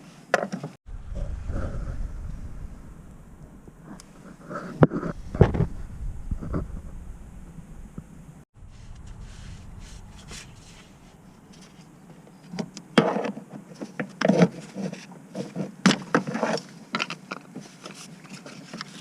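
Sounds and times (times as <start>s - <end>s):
faint steady hum: 0.9s - 13.0s.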